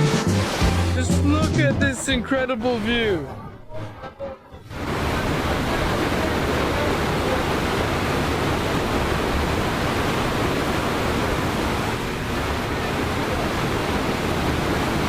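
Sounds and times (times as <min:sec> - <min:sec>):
waterfall pouring: 0:04.7 - 0:15.0.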